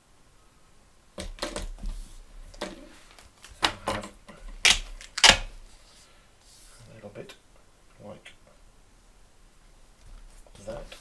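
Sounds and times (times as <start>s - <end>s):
tape ripping off roll: 1.2s - 5.8s.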